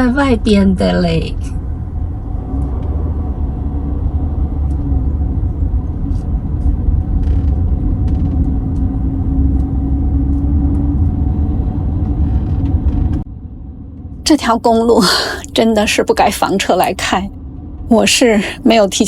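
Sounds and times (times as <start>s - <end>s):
constant hum: 0.0s - 19.0s
engine and road rumble: 0.0s - 19.0s
faint rattles and clicks: 6.0s - 11.2s.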